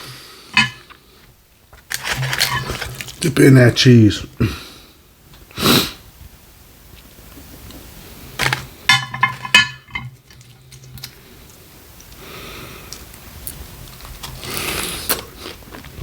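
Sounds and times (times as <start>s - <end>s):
quiet chewing: 10.6s - 16.0s.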